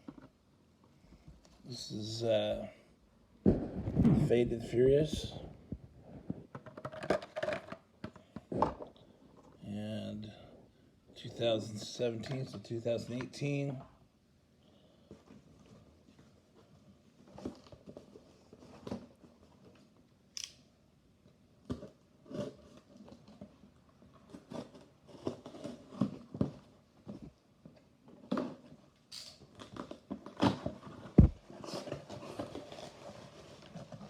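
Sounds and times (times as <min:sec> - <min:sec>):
plastic and cardboard crinkling: 0:15.1 - 0:20.0, 0:21.6 - 0:34.0.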